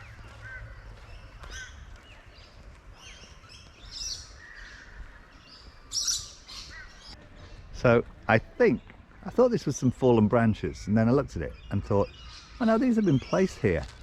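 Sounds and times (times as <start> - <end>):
birds chirping and calling: 0.0 - 14.0.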